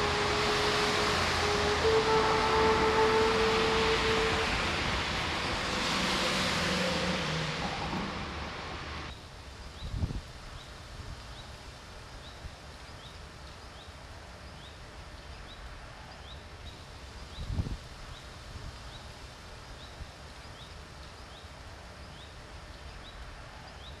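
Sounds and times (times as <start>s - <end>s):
low rumble: 0.0s - 9.1s
outdoor hiss: 0.0s - 24.0s.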